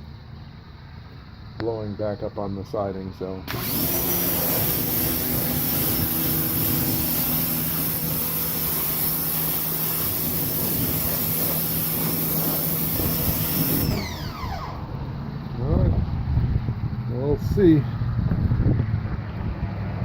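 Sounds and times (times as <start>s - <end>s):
water jet hissing: 3.5s - 14.9s
pressure washer motor whine: 3.5s - 15.2s.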